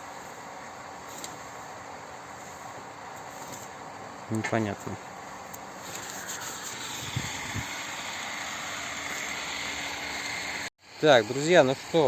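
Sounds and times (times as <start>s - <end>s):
water rushing from pump discharge: 6.4s - 10.7s.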